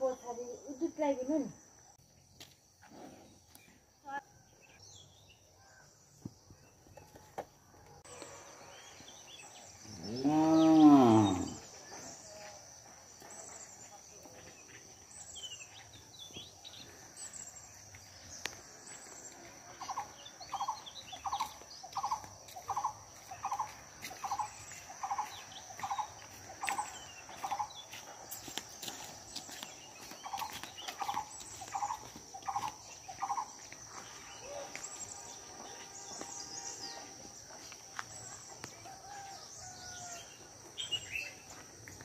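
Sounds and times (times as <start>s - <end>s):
other birds chirping: 15.2s - 41.6s
high-pitched insect trill: 16.6s - 42.0s.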